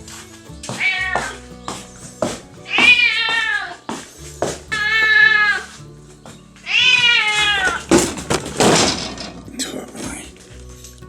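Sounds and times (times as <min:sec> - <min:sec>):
cat meowing: 0:00.8 - 0:01.4, 0:02.7 - 0:03.8, 0:04.7 - 0:05.7, 0:06.6 - 0:07.8.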